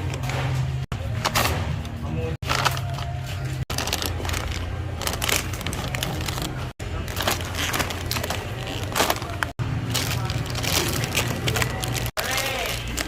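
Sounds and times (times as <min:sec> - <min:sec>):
packaging rustling and clicking: 0:02.4 - 0:12.1.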